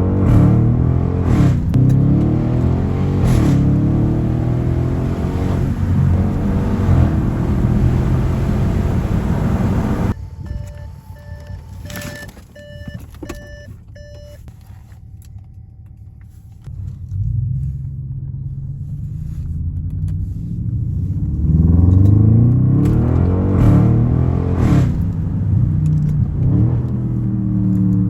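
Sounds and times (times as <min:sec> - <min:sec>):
car engine rumbling and revving: 0:00.0 - 0:28.0
electronic beeps: 0:10.1 - 0:14.4.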